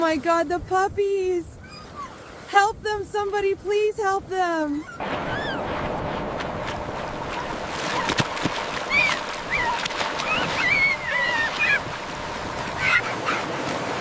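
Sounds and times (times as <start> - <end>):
puppies whimpering: 1.6 - 2.4, 4.8 - 5.6, 8.9 - 11.9, 12.7 - 13.5
rushing floodwater: 5.0 - 14.0.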